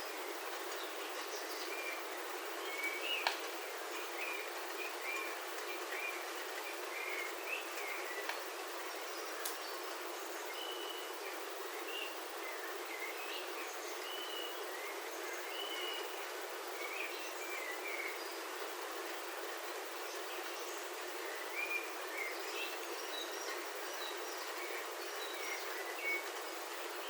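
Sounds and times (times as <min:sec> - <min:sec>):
birds chirping: 0:00.0 - 0:27.0
rain on a roof: 0:00.2 - 0:10.1, 0:22.7 - 0:27.0.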